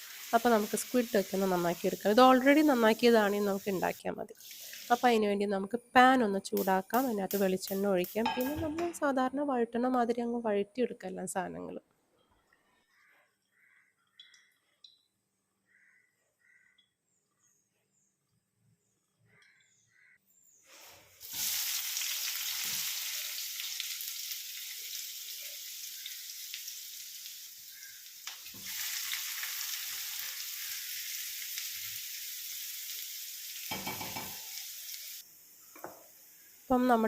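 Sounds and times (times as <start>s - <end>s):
onions sizzling in oil: 0.0s - 5.3s, 6.5s - 8.6s, 20.8s - 37.0s.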